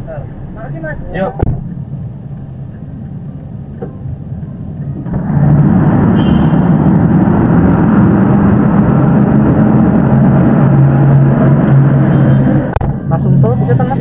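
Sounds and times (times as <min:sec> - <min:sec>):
car engine revving: 0:05.0 - 0:14.0.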